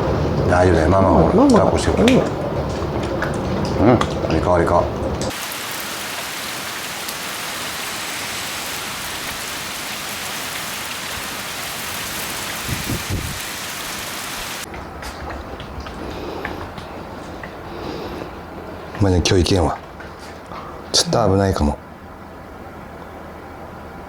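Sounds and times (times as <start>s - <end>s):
heavy rain pouring: 0.0s - 14.7s.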